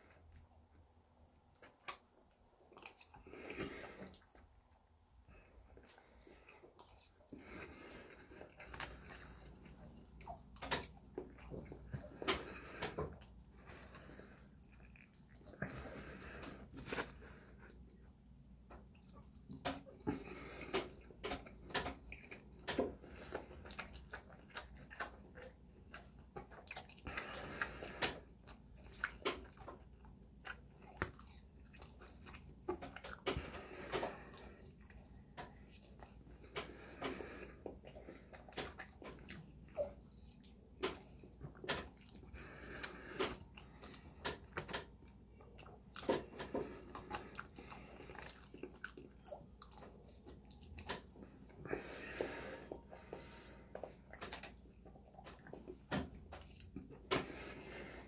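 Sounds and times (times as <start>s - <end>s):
chewing and biting food: 1.4s - 4.7s, 5.3s - 58.0s.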